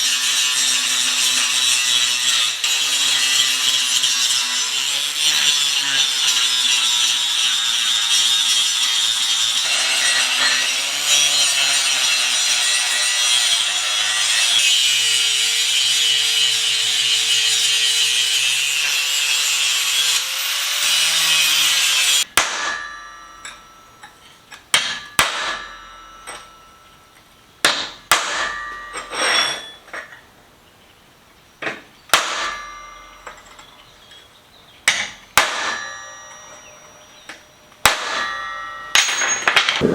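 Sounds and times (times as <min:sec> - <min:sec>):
power tool grinding steel: 0:00.0 - 0:27.2, 0:38.1 - 0:39.9
hammer striking steel: 0:21.7 - 0:30.2, 0:31.6 - 0:34.2, 0:34.8 - 0:39.9.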